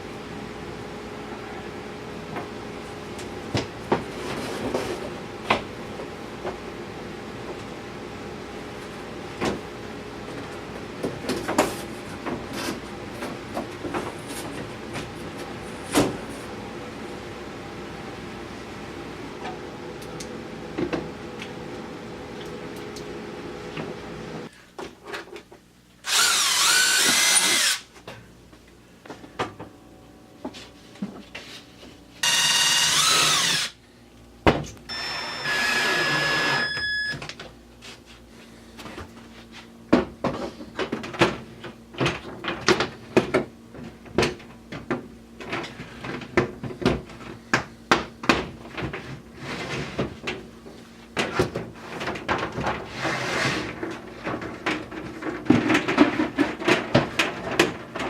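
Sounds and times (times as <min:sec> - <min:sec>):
power drill running: 0:26.0 - 0:27.9, 0:32.2 - 0:33.8, 0:34.9 - 0:37.1.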